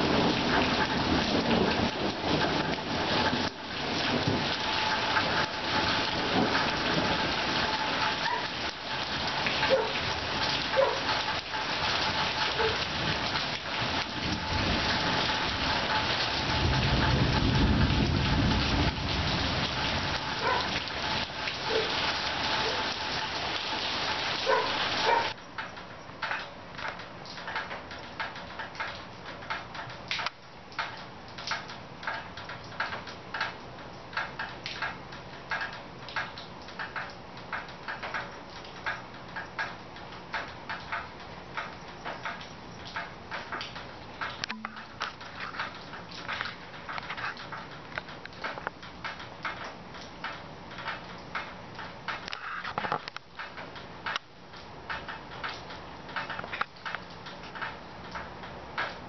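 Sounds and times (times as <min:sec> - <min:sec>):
low rumble of thunder: 0:00.0 - 0:23.3
heavy rain pouring: 0:00.0 - 0:59.0
patter of drips: 0:00.4 - 0:59.0.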